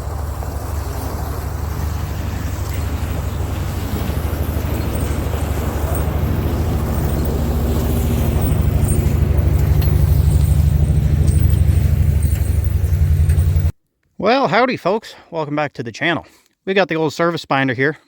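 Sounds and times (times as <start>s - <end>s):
vehicle engine running: 0.0s - 13.7s.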